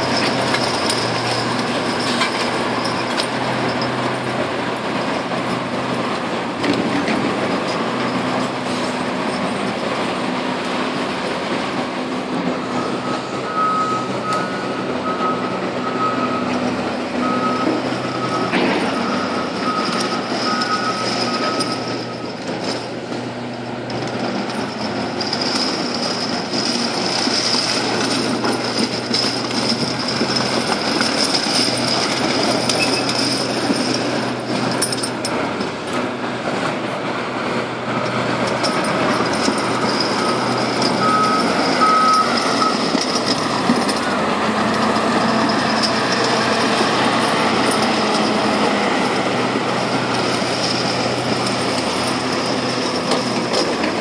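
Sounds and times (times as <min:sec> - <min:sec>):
heavy machinery running: 0:00.0 - 0:54.0
reversing alarm beeping: 0:12.6 - 0:22.3, 0:40.1 - 0:43.5.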